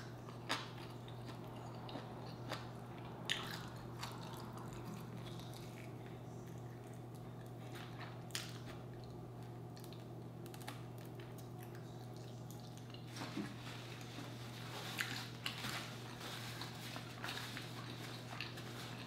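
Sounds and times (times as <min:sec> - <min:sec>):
chewing and biting: 0:00.0 - 0:10.3, 0:14.8 - 0:19.0
steady low hum: 0:00.0 - 0:19.0.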